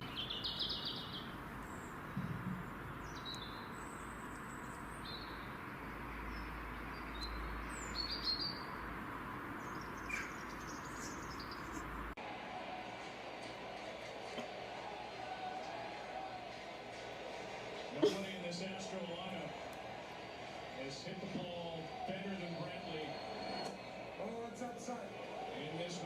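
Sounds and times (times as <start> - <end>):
birds chirping: 0.0 - 12.2, 20.8 - 26.0.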